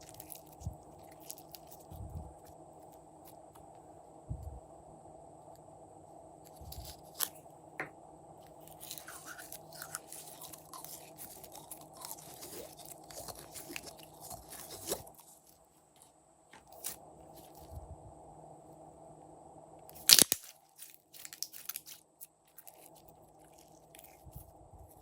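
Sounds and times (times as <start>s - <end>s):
slime crunching and crackling: 0.0s - 3.0s, 8.6s - 15.6s, 20.0s - 25.0s
slime being mixed by hand: 8.6s - 15.5s.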